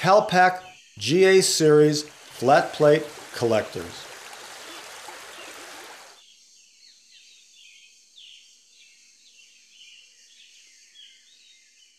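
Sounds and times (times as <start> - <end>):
steady high hiss: 1.0 - 6.2.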